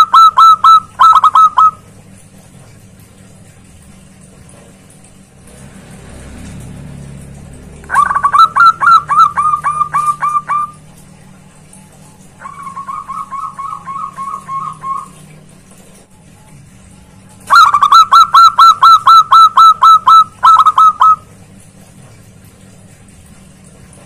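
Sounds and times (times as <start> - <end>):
dove cooing: 0.0 - 1.8, 7.9 - 11.3, 12.0 - 15.5, 17.4 - 21.2.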